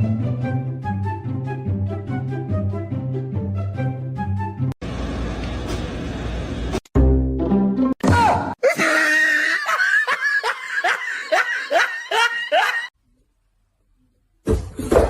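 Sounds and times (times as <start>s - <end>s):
person laughing hard: 8.6s - 12.9s.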